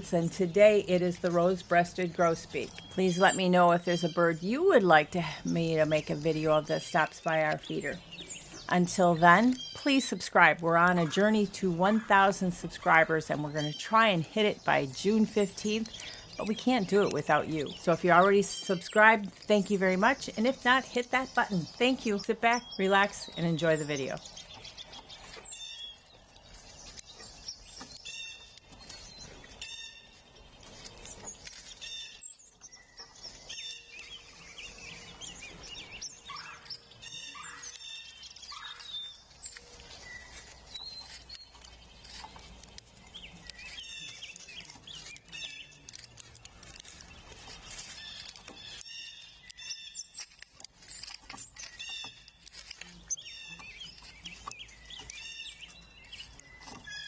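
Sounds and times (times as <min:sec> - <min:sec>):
songbirds chirping and singing: 0:00.0 - 0:26.0, 0:32.7 - 0:39.2, 0:41.9 - 0:46.8, 0:52.8 - 0:57.0.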